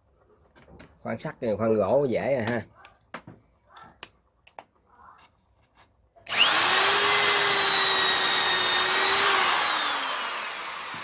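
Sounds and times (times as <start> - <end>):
electric drill motor whining: 6.3 - 11.0.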